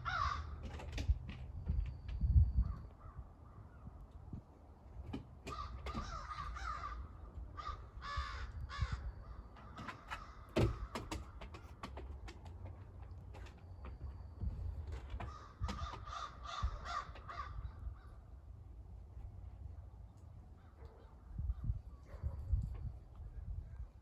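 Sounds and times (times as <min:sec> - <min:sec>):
crows cawing: 0:00.0 - 0:00.7, 0:05.5 - 0:11.3, 0:15.2 - 0:18.2.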